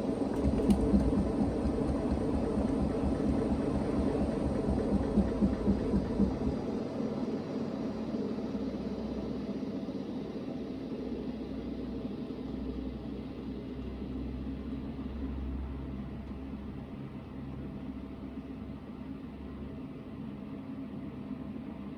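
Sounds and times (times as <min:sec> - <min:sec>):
washing machine drum spinning: 0:00.0 - 0:06.6
rhythmic thumps: 0:00.4 - 0:06.6.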